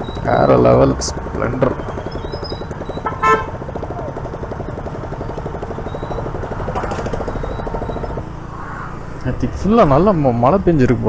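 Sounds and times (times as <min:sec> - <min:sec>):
motorcycle engine running: 0:00.0 - 0:11.0
vehicle horn toot: 0:02.8 - 0:04.1.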